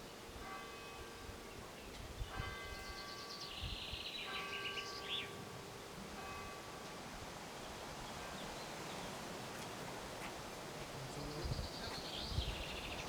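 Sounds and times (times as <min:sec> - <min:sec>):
bird chirping: 0:02.8 - 0:05.4, 0:11.1 - 0:13.0.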